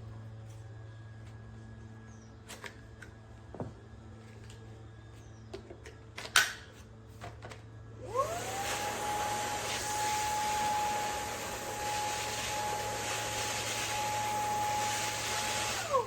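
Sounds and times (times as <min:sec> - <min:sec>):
vacuum motor whine: 0:07.8 - 0:16.0.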